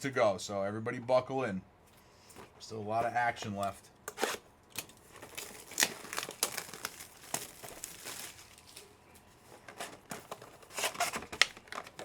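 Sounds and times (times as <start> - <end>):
foil wrappers crinkling and tearing: 4.2 - 12.0.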